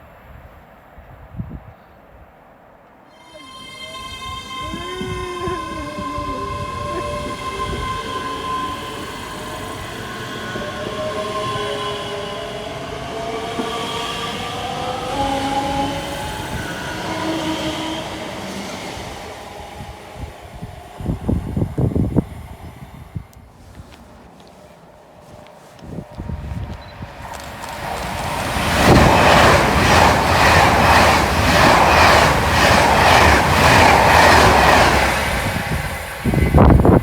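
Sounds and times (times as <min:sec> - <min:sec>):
train rumbling on track: 0:02.6 - 0:37.0
whining tones sliding in pitch: 0:03.1 - 0:23.5.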